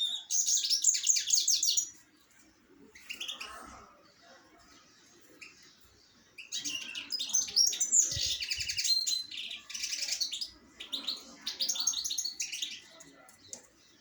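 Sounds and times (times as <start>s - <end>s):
small birds chirping and trilling: 0.0s - 14.0s.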